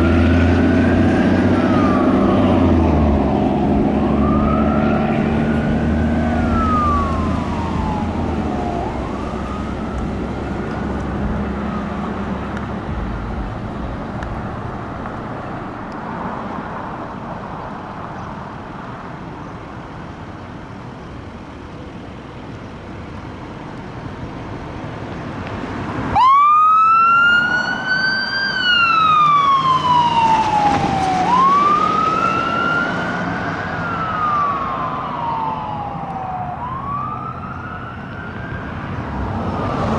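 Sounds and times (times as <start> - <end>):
siren wailing: 0.0 - 16.8, 26.1 - 39.9
road noise: 0.0 - 39.9
truck engine rumble: 0.0 - 39.9.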